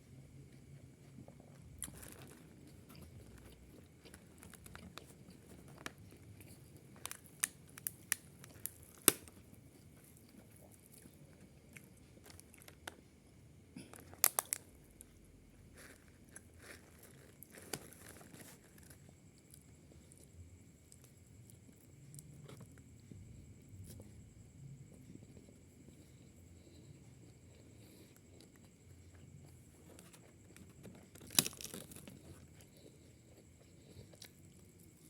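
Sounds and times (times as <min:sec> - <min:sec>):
person chewing food: 0:00.4 - 0:13.2, 0:13.8 - 0:35.0
crunchy clicks of bites: 0:01.4 - 0:13.0, 0:13.8 - 0:15.1, 0:15.8 - 0:20.3, 0:27.6 - 0:35.0.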